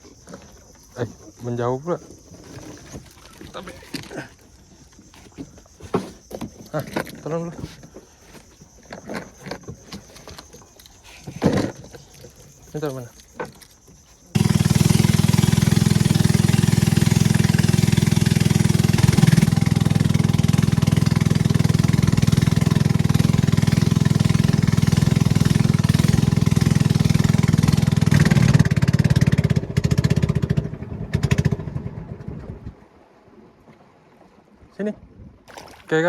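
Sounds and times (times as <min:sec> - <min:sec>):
boat engine running: 0:08.6 - 0:33.0.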